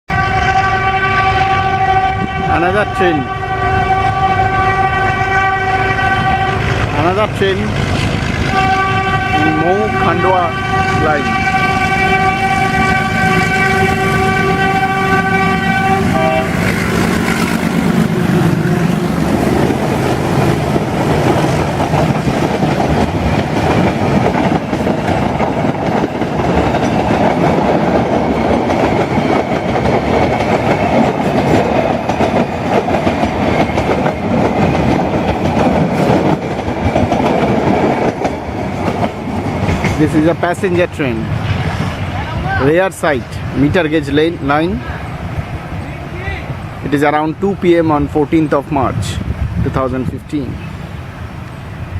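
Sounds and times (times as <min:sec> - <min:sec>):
locomotive horn blast: 0:00.1 - 0:07.2, 0:08.4 - 0:19.4
train rolling past: 0:00.1 - 0:51.9
wheels clacking over rail joints: 0:15.2 - 0:42.3.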